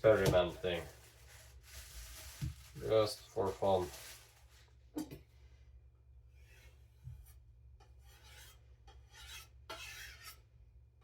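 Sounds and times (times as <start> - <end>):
knife stropping rasps: 8.0 - 10.4.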